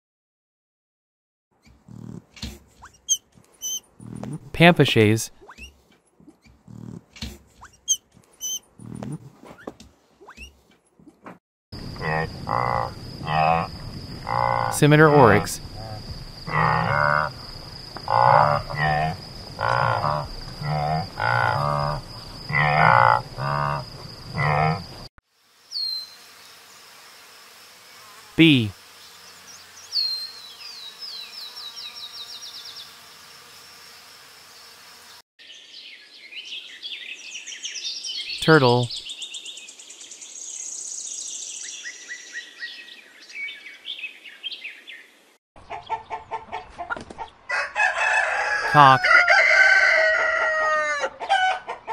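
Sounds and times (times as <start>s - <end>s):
fast high bird trill: 2.8s - 3.9s
oryx short calls: 14.7s - 15.6s, 28.4s - 28.8s, 38.4s - 38.9s
small songbirds chirping: 28.9s - 33.4s, 35.4s - 46.3s
rooster clucking: 45.6s - 51.9s.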